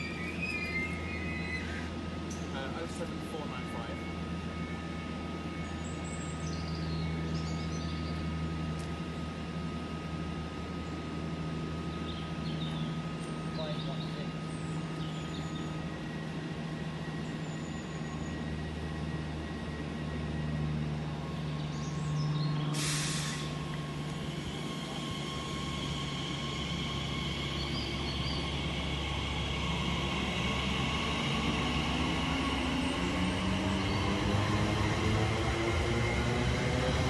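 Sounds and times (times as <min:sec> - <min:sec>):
electric train motor whine: 0:00.0 - 0:13.2, 0:14.4 - 0:37.0
air hiss: 0:22.7 - 0:23.6.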